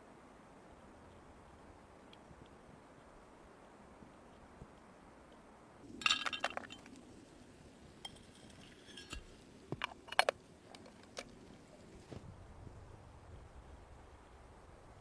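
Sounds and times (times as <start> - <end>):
cookware and utensils clinking: 8.1 - 9.2.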